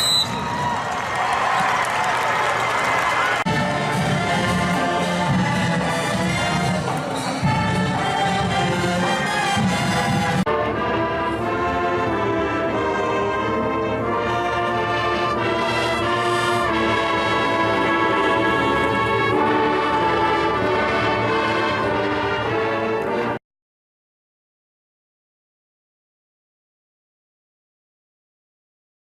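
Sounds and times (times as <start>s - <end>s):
brass-led orchestral music: 2.8s - 23.4s.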